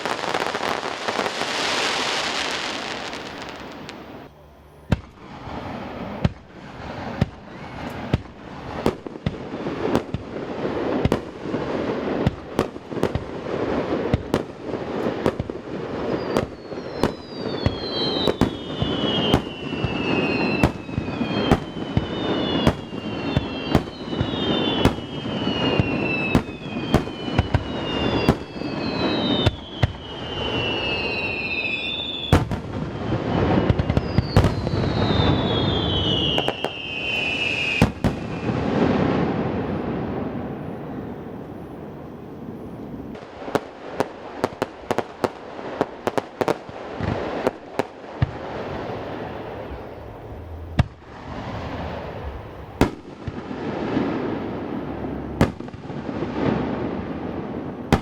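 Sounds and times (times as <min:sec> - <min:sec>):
falling firework whistles: 0:00.0 - 0:58.0
continuous rumble: 0:48.5 - 0:53.3.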